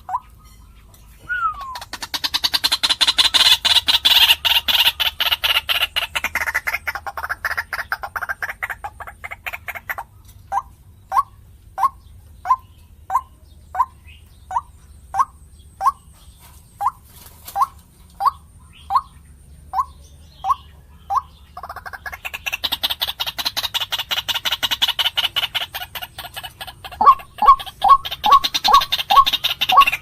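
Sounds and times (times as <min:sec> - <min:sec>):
rapid bird call chorus: 0:00.0 - 0:30.0.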